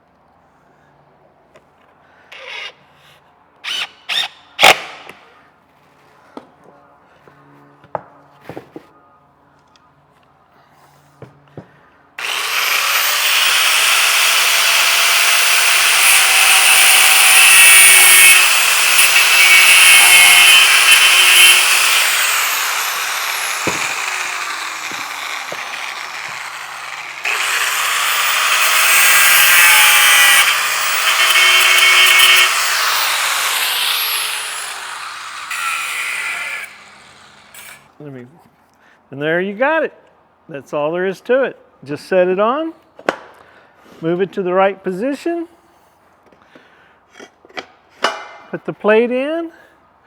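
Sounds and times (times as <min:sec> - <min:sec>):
grinder cutting steel: 0:12.2 - 0:37.9.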